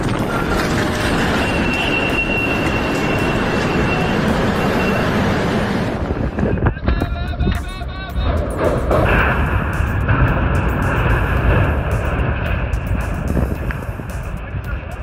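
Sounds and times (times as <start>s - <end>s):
strong wind buffeting microphone: 0.0s - 15.0s
thin high whistle: 1.3s - 5.2s.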